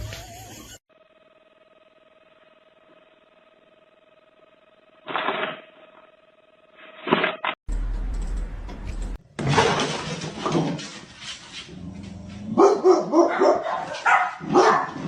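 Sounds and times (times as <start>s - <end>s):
dog barking: 12.5s - 15.0s.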